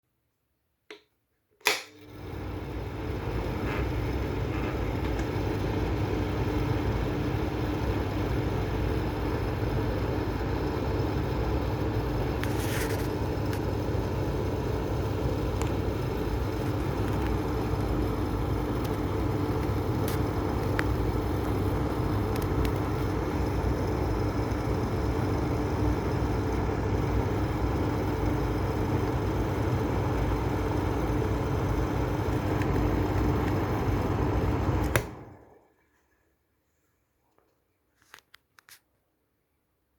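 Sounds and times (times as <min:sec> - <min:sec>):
fan switch click: 0:01.6 - 0:02.0, 0:34.8 - 0:35.2
exhaust fan running: 0:01.6 - 0:35.7.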